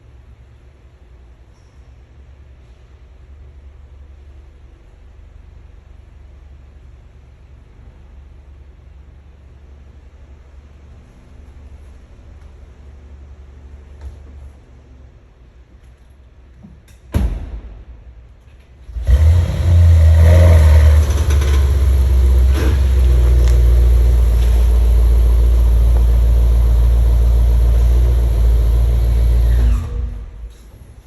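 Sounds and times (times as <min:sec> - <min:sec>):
car engine starting and rumbling: 0:18.0 - 0:31.0.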